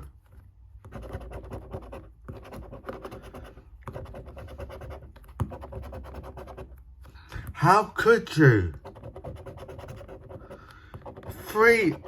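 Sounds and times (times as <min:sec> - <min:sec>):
scratchcard being scratched: 0:00.9 - 0:06.8, 0:08.4 - 0:12.0.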